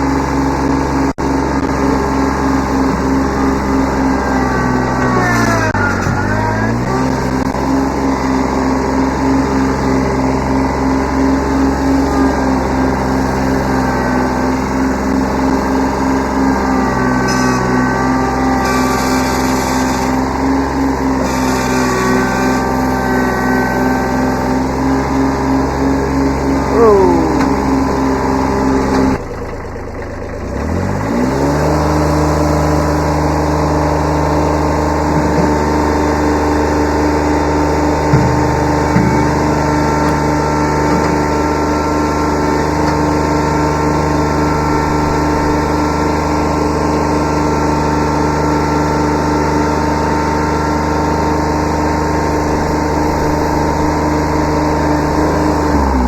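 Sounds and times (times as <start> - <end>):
tractor diesel engine revving: 0.0 - 56.0
light engine knocks: 38.1 - 40.3.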